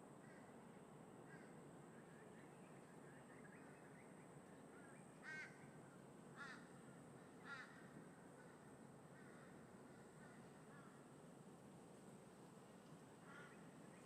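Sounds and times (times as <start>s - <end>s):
crow cawing: 7.4s - 7.8s.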